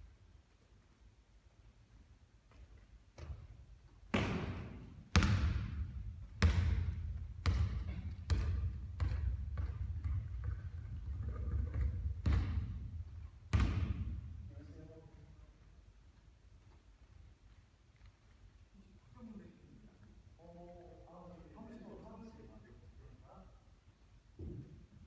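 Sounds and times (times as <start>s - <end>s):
basketball bouncing on court floor: 3.2s - 3.5s, 4.1s - 14.4s.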